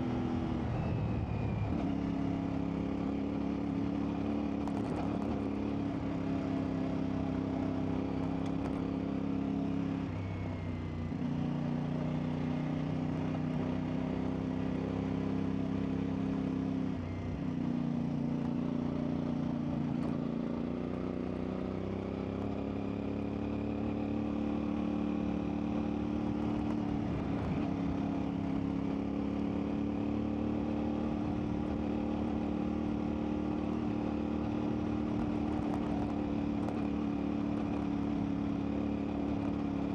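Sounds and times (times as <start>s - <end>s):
motorcycle engine running: 10.7s - 39.9s.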